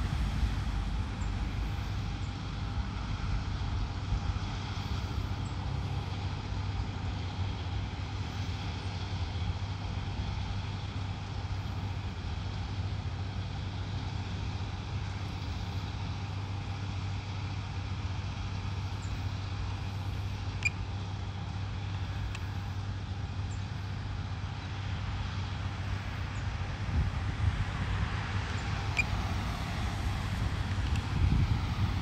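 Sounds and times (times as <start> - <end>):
low mechanical hum: 0.0 - 32.0
faint sharp click: 21.9 - 22.5.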